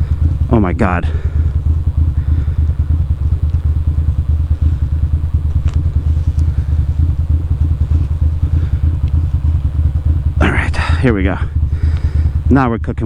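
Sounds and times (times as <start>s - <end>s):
motorcycle engine idling: 0.0s - 13.0s
faint ticks: 1.1s - 10.4s, 11.6s - 12.5s.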